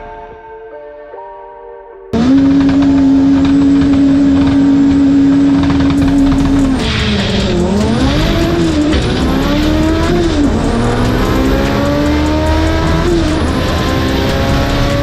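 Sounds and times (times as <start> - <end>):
race car engine revving: 2.2 - 15.0
high whine: 6.0 - 15.0.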